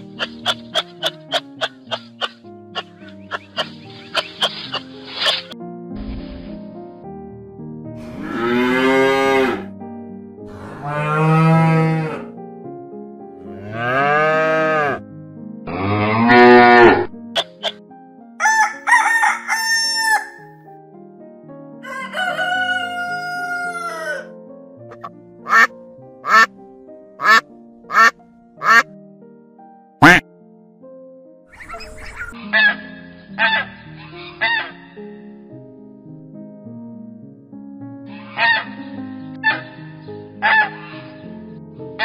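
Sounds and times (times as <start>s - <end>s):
duck quacking: 0.0s - 5.5s, 17.4s - 17.8s, 24.9s - 26.5s, 27.2s - 28.9s, 30.0s - 30.2s, 38.3s - 38.8s
soft background music: 0.0s - 42.0s
cattle mooing: 8.1s - 9.7s, 10.5s - 12.3s, 13.5s - 15.0s, 15.7s - 17.1s
rooster crowing: 18.4s - 20.5s, 21.8s - 24.3s.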